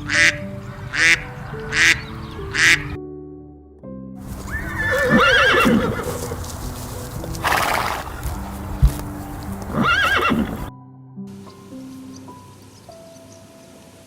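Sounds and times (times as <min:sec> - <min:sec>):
soft background music: 0:00.0 - 0:14.0
horse whinnying: 0:04.4 - 0:06.4, 0:07.4 - 0:08.2, 0:09.7 - 0:10.7.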